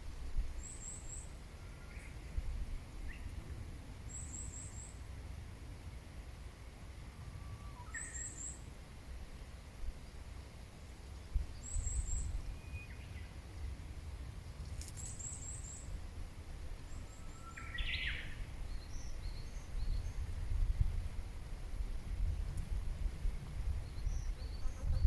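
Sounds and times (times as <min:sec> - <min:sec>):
birds chirping: 0:23.7 - 0:25.0.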